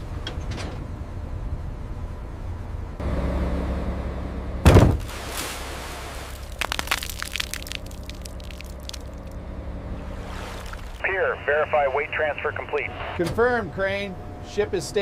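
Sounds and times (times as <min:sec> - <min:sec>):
heavy hull impact: 0:04.6 - 0:05.7
sharp cracks: 0:06.3 - 0:09.4.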